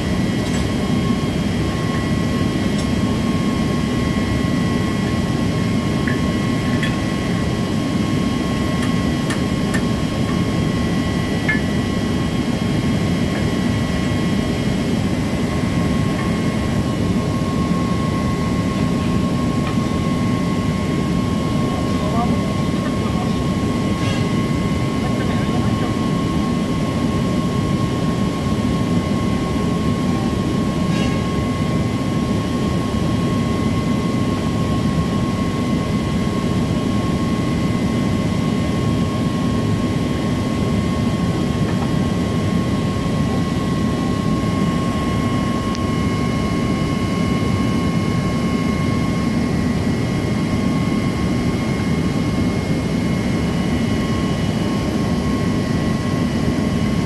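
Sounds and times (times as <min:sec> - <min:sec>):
machinery droning: 0:00.0 - 0:33.0
constant high whine: 0:00.0 - 0:57.0.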